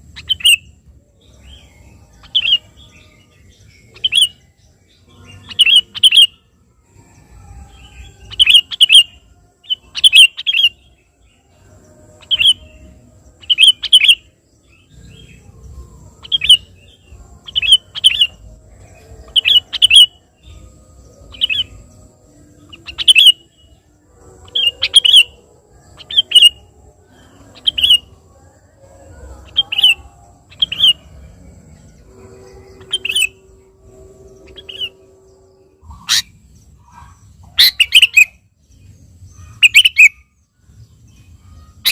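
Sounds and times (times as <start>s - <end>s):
bird calling: 5.3s - 6.3s, 15.2s - 20.6s, 22.6s - 23.6s, 24.4s - 28.2s, 29.0s - 38.4s, 39.3s - 40.2s, 41.5s - 41.9s.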